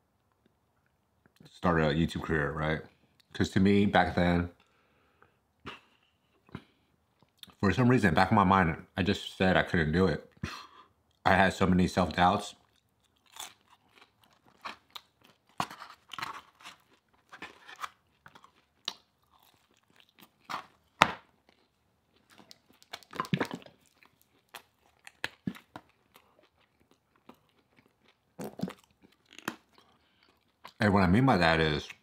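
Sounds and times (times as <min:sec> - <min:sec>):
crunchy chewing: 0:12.5 - 0:30.8.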